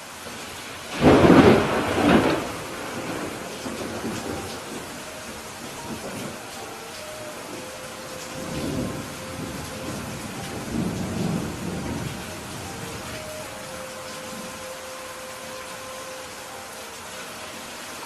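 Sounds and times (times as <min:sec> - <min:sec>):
steady rain: 0:00.0 - 0:18.0
thunder rolling: 0:00.9 - 0:06.4, 0:07.4 - 0:13.8.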